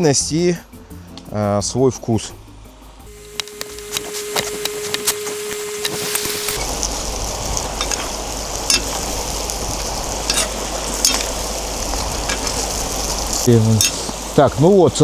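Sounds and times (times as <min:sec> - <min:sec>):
food sizzling in a pot: 0:03.1 - 0:15.0.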